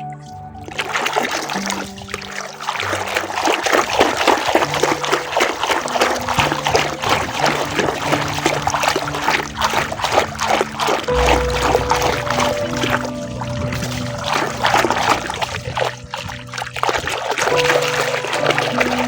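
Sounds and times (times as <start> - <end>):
water churning and splashing: 0.0 - 19.0.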